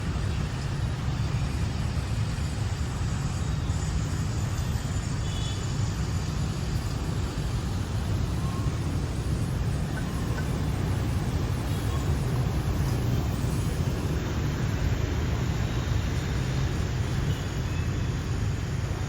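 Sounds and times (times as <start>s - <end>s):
low outdoor rumble: 6.1s - 19.0s.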